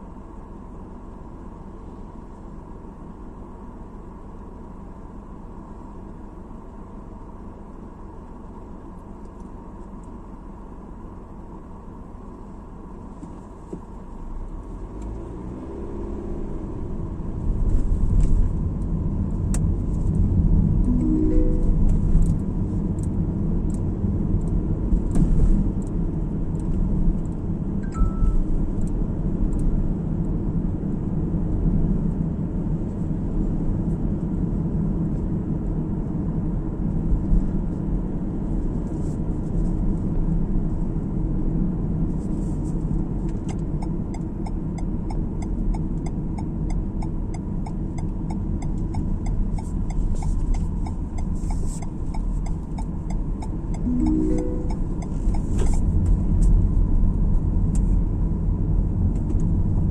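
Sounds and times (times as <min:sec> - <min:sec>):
car road and engine rumble: 0:00.0 - 0:59.9
short beep: 0:20.9 - 0:22.4, 0:27.8 - 0:28.4, 0:53.9 - 0:55.4.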